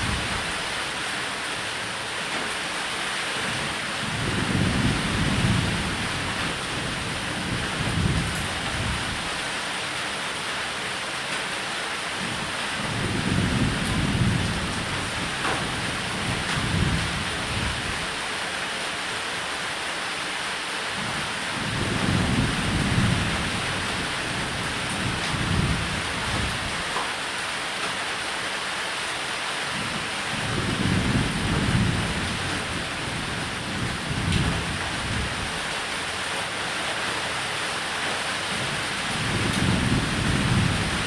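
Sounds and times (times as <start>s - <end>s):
rain falling on a roof: 0.0s - 41.0s
thunder rolling: 30.4s - 35.7s.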